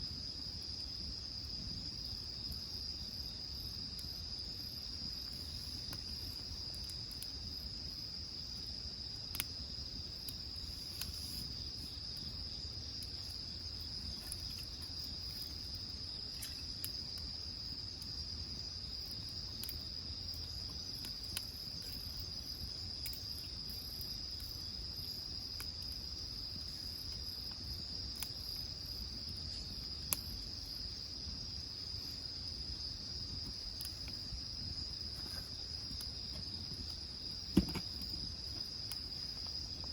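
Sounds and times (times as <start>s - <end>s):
insects trilling: 0.0s - 39.9s
burning wood popping: 33.2s - 39.9s.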